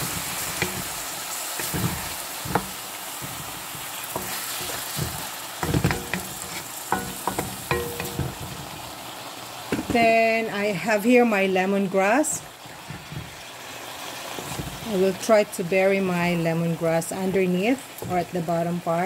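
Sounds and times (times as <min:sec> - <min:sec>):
wooden spatula knocking and scraping: 0:00.0 - 0:08.9, 0:12.2 - 0:13.5, 0:14.3 - 0:15.1, 0:17.2 - 0:18.7
chicken sizzling in oil: 0:00.0 - 0:19.0.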